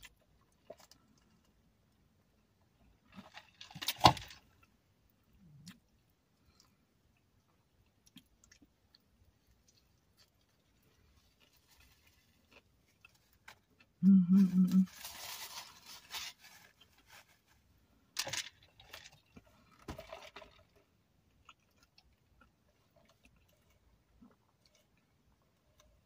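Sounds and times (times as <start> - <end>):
chewing and wet mouth noises: 5.4 - 14.7, 20.4 - 26.0.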